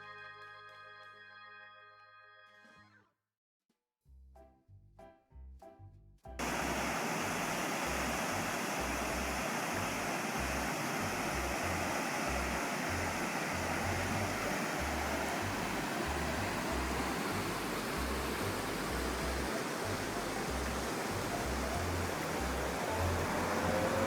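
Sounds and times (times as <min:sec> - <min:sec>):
river water rushing: 0:06.4 - 0:24.0.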